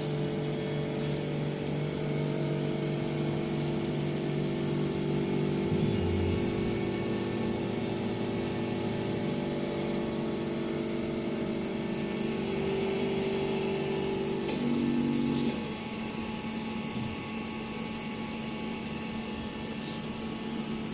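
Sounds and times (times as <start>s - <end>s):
rework station electrical hum: 0.0s - 20.9s
click: 14.4s - 14.8s.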